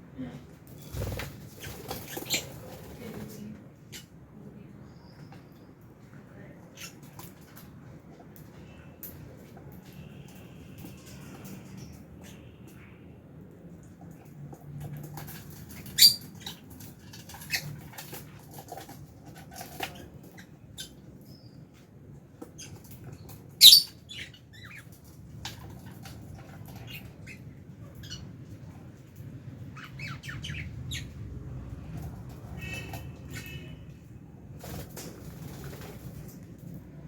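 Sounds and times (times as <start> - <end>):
birds chirping and squeaking: 0.7 - 4.1, 6.7 - 7.7, 10.7 - 13.0, 14.6 - 36.0.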